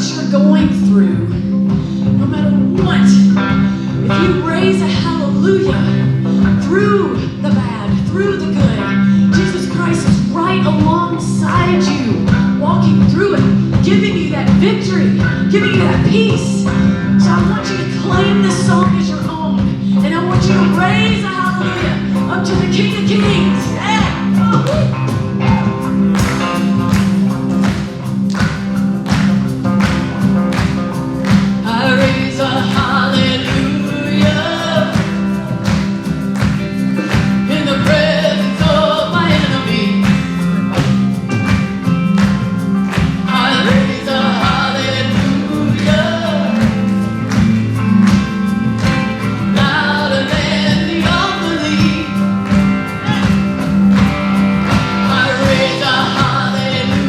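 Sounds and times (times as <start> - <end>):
worship band playing: 0.0 - 57.0
person singing: 31.2 - 57.0.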